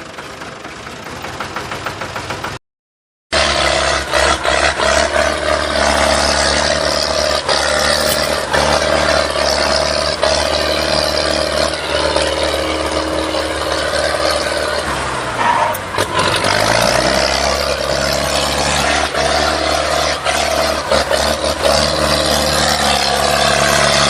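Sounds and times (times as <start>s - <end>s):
tractor engine running: 0.0s - 2.6s, 3.3s - 24.0s.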